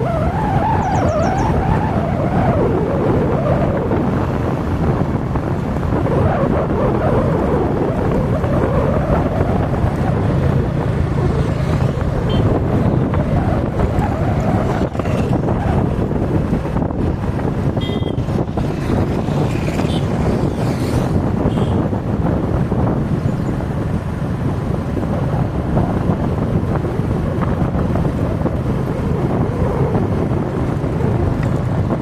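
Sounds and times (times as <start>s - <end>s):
engine and road rumble: 0.0s - 32.0s
wind buffeting microphone: 0.0s - 32.0s.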